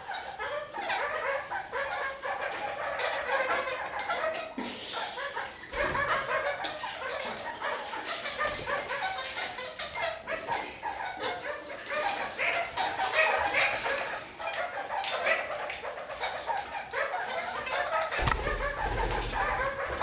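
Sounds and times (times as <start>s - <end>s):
parakeets chattering: 16.0s - 20.0s
sharp clicks: 18.2s - 19.4s.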